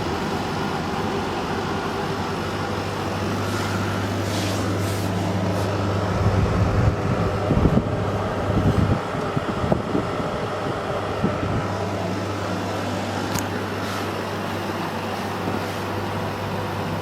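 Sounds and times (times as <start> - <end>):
air conditioner humming: 0.0 - 17.0
low rumbles: 5.3 - 13.7.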